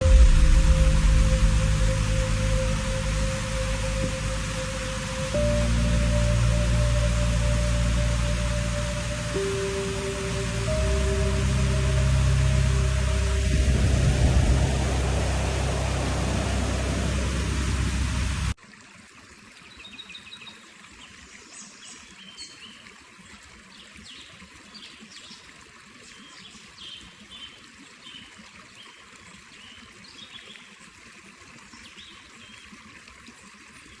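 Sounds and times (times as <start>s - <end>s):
bright bubbling chirping notes: 0.0s - 18.6s
loud rushing noise: 0.0s - 18.6s
soft steady hiss: 0.0s - 18.6s
water trickling: 0.0s - 34.0s.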